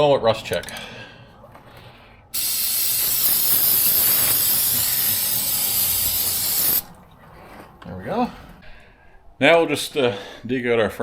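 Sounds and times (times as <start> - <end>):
aerosol can spraying: 2.4 - 6.9.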